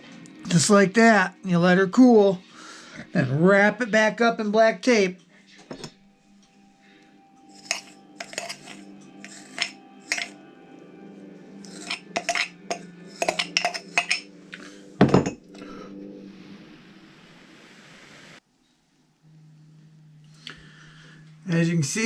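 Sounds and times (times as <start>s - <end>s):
small tools clinking and tapping: 7.6s - 10.4s, 11.7s - 14.2s.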